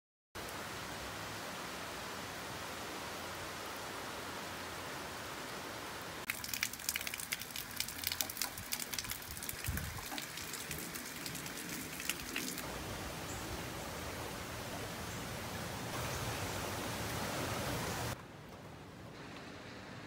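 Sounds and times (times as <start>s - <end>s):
heavy rain hiss: 0.4s - 18.2s
raindrops pattering on hard surfaces: 6.2s - 12.7s.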